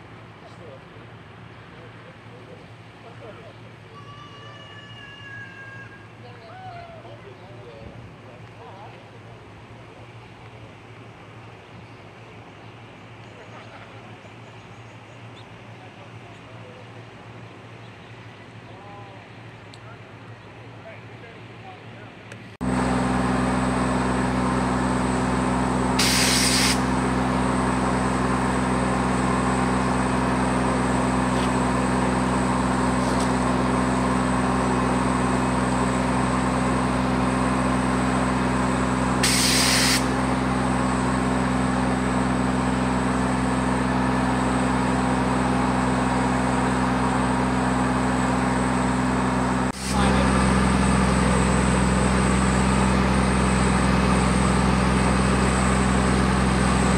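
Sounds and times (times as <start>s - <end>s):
large diesel engine running: 0.0s - 56.9s
sharp air hisses: 26.0s - 26.9s, 39.2s - 40.1s.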